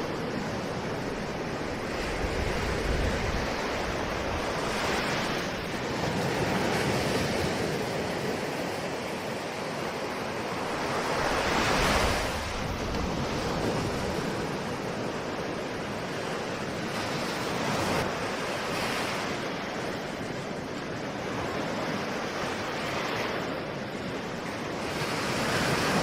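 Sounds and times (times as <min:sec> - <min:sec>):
ocean waves washing: 0:00.0 - 0:26.0
wave breaking: 0:09.9 - 0:14.9.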